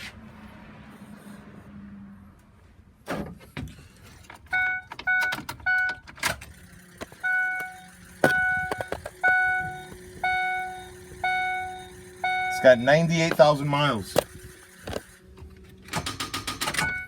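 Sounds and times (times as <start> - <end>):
sharp clicks and knocks: 3.1 - 10.4, 13.2 - 17.0
dashboard warning chime dinging: 4.5 - 17.0.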